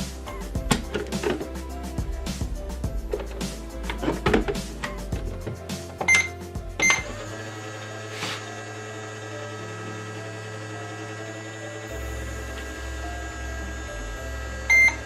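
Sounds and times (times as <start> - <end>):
toy microwave running hum: 6.0 - 15.0
toy microwave button beeps: 6.1 - 7.1, 14.7 - 15.0.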